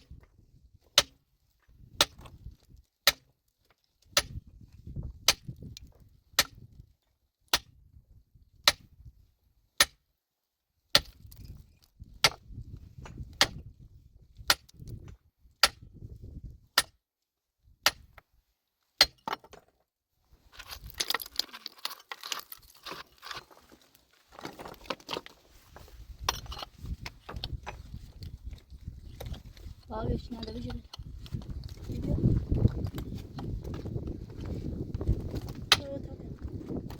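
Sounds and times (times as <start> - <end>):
metal tool striking rock: 1.0 - 1.2, 2.0 - 2.4, 3.0 - 3.3, 4.1 - 4.4, 6.4 - 6.7, 10.9 - 11.5, 13.0 - 13.6, 16.8 - 17.0, 19.0 - 19.6
stones and rubble clattering: 19.0 - 19.8, 20.4 - 36.9.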